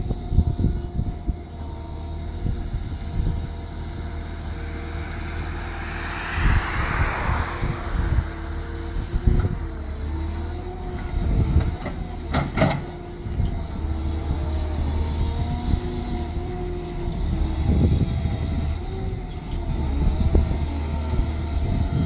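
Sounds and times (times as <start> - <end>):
diesel engine under load: 0.0 - 22.0.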